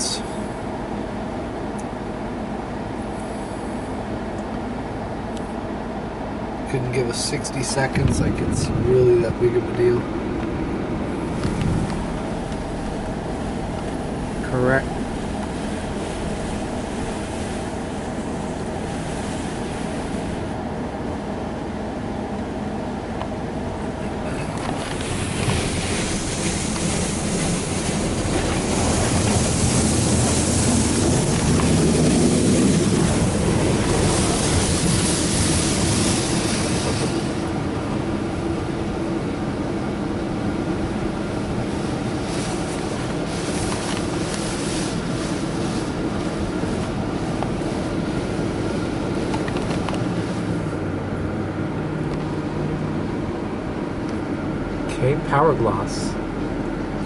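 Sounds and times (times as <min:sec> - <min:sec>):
water spraying over car: 0:11.1 - 0:20.6, 0:23.6 - 0:53.2
pumps and motors humming: 0:23.2 - 0:38.9.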